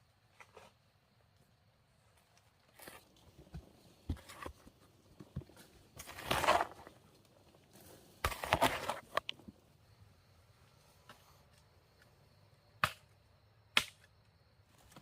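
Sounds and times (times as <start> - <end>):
rustling and crunching handling noise: 2.2 - 9.6.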